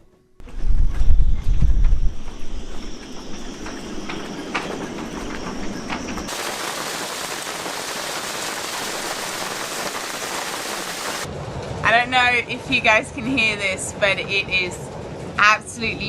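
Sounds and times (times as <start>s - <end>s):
heavy rain hiss: 6.3s - 11.3s
rain patter with drips: 6.3s - 11.3s.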